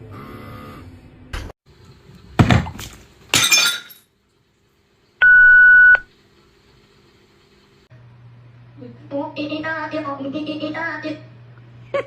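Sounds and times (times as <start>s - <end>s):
glass shattering: 3.3s - 4.1s.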